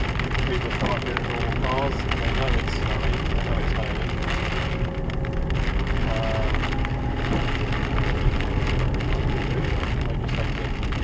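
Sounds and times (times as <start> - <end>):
engine and road rumble: 0.0 - 11.0
hail pattering on vehicle: 0.0 - 11.0.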